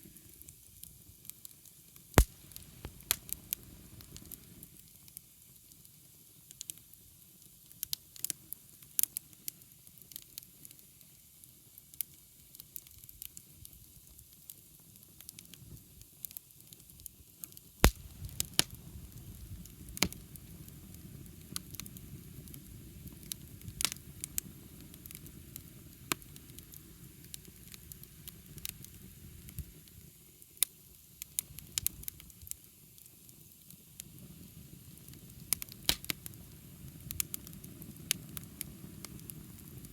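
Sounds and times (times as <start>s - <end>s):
wood fire crackling and hissing: 0.0s - 39.9s
low rumble of flame: 2.2s - 4.8s, 17.8s - 39.9s.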